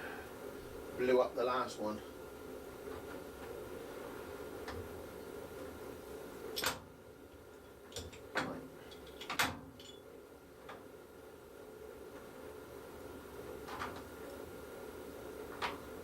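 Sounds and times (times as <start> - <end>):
steady hum: 0.0 - 7.9.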